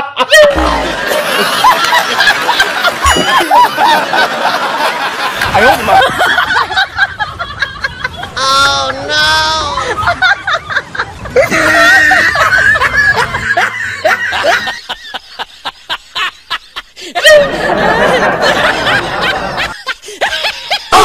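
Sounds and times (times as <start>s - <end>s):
person snickering and chuckling: 0.0s - 6.5s.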